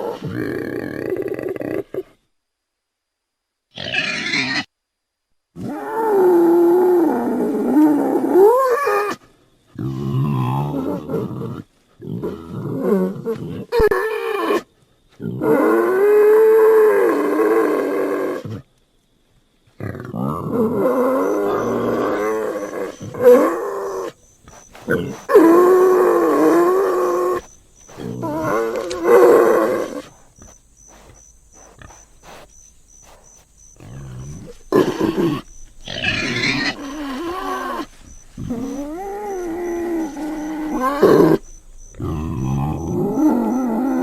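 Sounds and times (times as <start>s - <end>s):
warthog calling: 20.2s - 44.0s.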